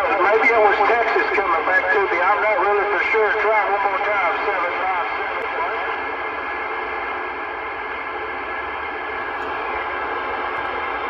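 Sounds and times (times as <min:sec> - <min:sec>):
radio static hiss: 0:03.1 - 0:06.1, 0:08.9 - 0:11.0.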